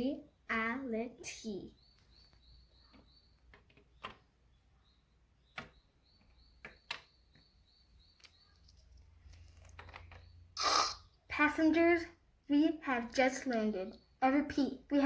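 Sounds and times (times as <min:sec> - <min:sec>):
faint high chirp: 0:01.6 - 0:09.0.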